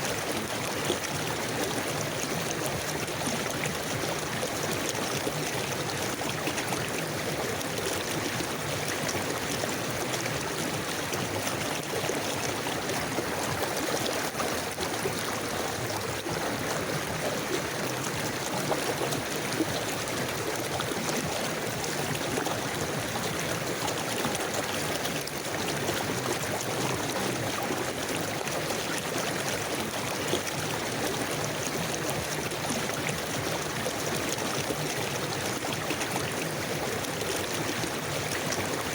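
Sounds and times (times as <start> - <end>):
river water flowing over stones: 0.0 - 38.9.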